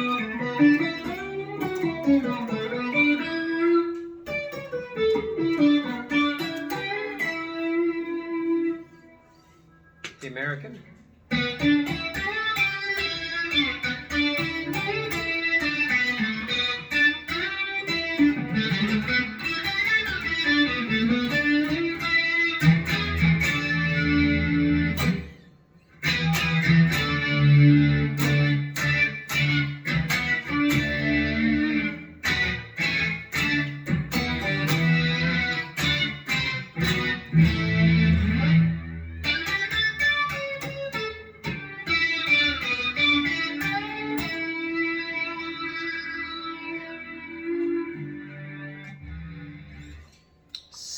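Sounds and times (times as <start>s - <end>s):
synth lead electric guitar: 0.0s - 10.0s, 11.3s - 25.4s, 26.0s - 50.2s.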